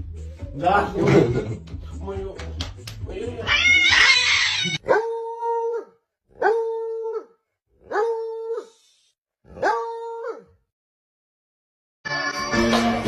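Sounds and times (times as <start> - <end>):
dog howling: 3.5 - 8.7, 9.5 - 10.6.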